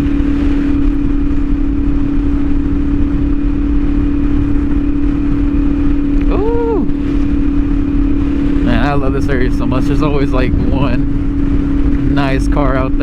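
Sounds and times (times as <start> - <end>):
wind and road noise: 0.0 - 13.0
motorcycle engine cruising: 4.1 - 13.0
short rising and falling tone: 9.5 - 12.6.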